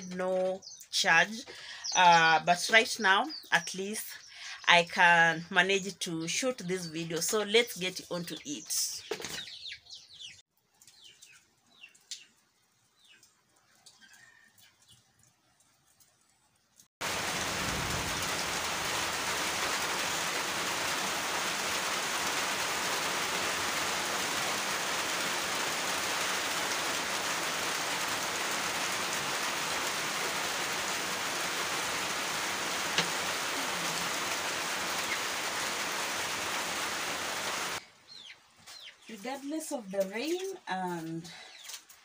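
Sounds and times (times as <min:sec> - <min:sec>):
rain falling: 0:10.5 - 0:38.2.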